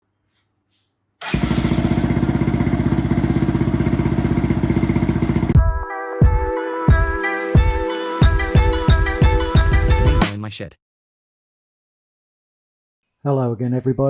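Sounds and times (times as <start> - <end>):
dirt bike engine running: 1.2 - 5.6
intro music with steady beat: 5.5 - 10.3.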